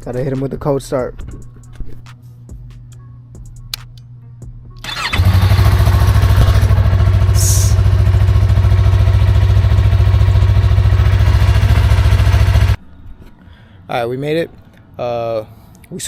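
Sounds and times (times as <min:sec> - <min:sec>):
motorcycle engine starting and idling: 0:04.8 - 0:12.8.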